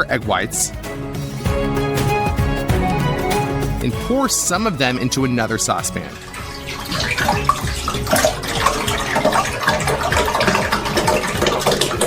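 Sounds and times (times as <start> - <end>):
liquid pouring into saucepan: 5.4 - 12.0.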